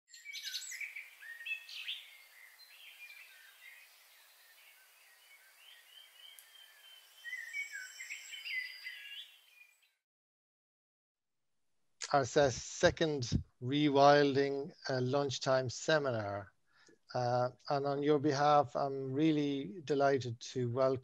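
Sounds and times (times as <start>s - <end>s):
birds chirping and whistling: 0.1s - 10.0s
faint hiss: 12.0s - 16.4s.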